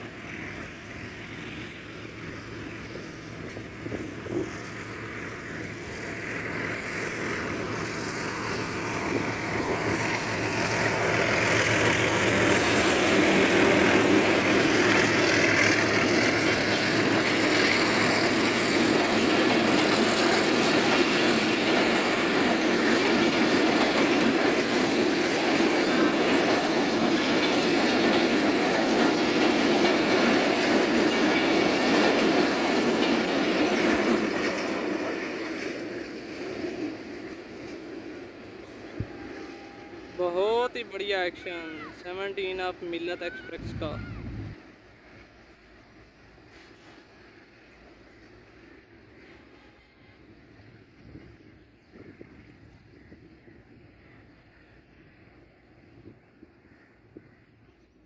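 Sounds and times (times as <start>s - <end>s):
train wheels rumbling and clattering: 0.0s - 39.9s
locomotive engines running: 0.0s - 51.4s.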